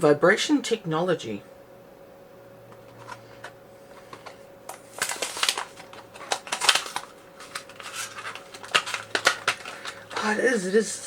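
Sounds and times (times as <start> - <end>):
packaging crinkling and clicking: 2.8 - 10.4.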